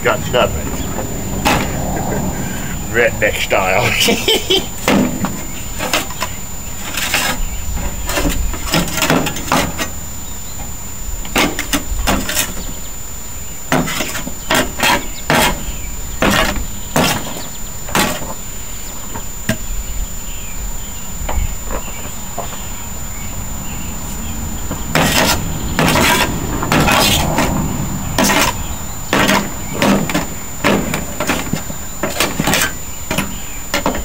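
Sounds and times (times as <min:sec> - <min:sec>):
knocks and clanks on metal: 0:01.4 - 0:01.9, 0:04.8 - 0:10.0, 0:11.2 - 0:12.7, 0:13.7 - 0:15.6, 0:16.2 - 0:18.4, 0:24.7 - 0:34.0.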